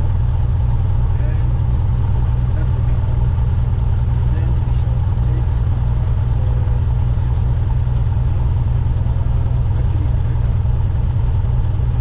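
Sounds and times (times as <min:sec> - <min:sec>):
light aircraft engine and propeller: 0:00.0 - 0:12.0.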